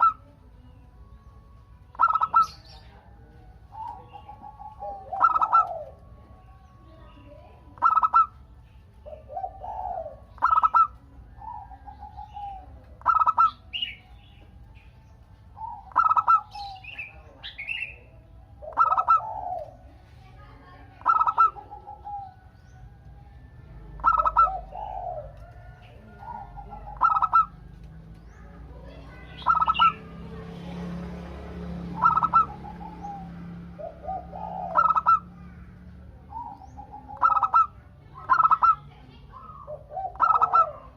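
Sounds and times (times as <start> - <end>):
dove cooing: 0.0 - 14.4, 15.4 - 30.6, 31.3 - 40.9
higher bird chirps: 0.0 - 19.9, 21.0 - 31.0, 31.7 - 40.9.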